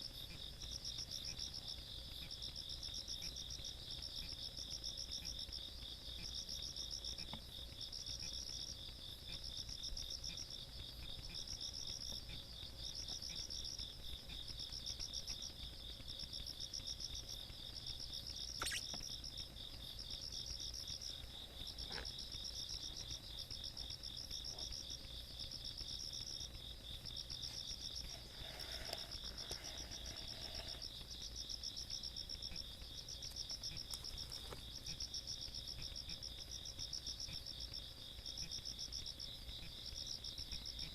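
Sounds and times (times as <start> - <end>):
insect continuous trill: 0.0 - 40.9
insect trill bursts: 18.3 - 19.5, 25.8 - 34.4.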